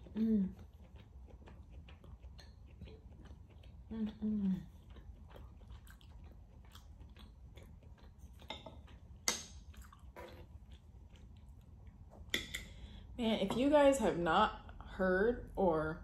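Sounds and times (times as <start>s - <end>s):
person chewing with wet smacks: 0.0s - 12.4s.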